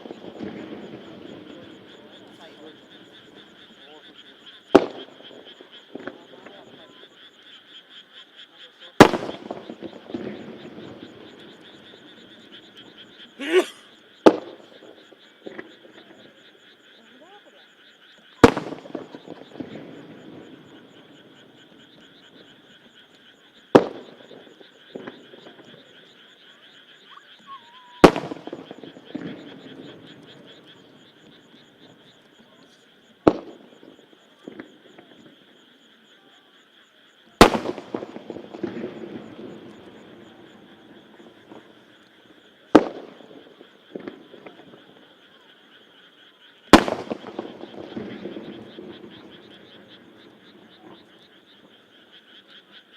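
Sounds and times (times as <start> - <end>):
firework shells booming: 0.0 - 3.6, 4.7 - 6.2, 9.0 - 12.5, 18.4 - 21.0, 23.7 - 25.8, 28.0 - 30.4, 33.2 - 35.1, 37.4 - 41.8, 42.7 - 44.8, 46.7 - 51.0
croaking frogs: 0.0 - 52.9.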